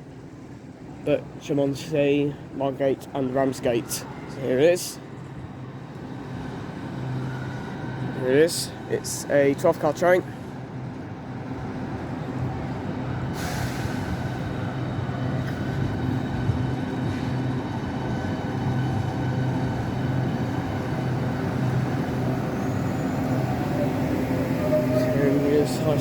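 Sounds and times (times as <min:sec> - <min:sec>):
electric train humming: 0:10.4 - 0:26.0
air hiss: 0:13.4 - 0:14.4.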